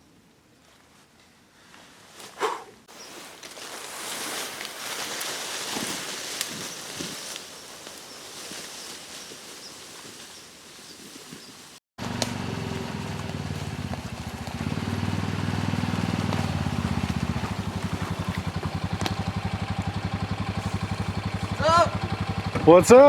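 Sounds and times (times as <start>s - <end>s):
faint outdoor ambience: 0.0s - 23.0s
utility vehicle engine idling: 12.0s - 23.0s.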